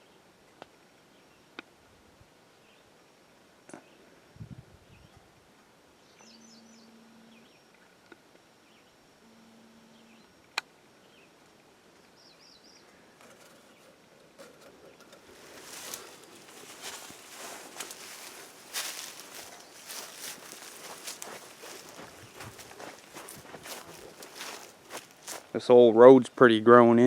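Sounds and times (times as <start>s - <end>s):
low steady hum: 0.0s - 26.0s
faint bird chirps: 6.0s - 7.9s, 8.6s - 11.4s
footsteps rustling through brush: 14.4s - 25.6s.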